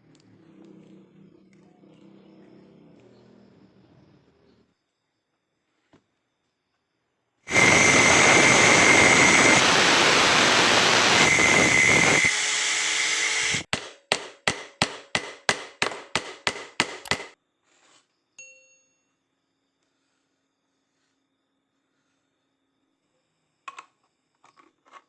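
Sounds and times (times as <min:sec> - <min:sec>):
angle grinder running: 0:07.5 - 0:13.7
sharp ringing knocks: 0:13.7 - 0:17.4
faint ding: 0:18.4 - 0:19.2.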